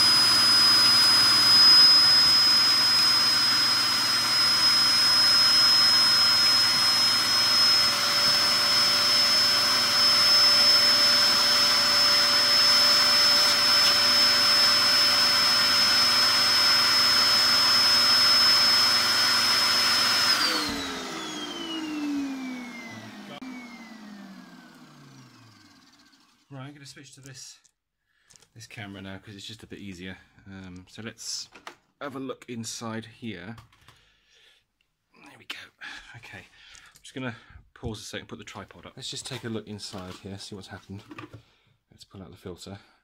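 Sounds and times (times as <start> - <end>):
vacuum cleaner whining: 0.0 - 26.5
vacuum motor winding down: 0.0 - 26.5.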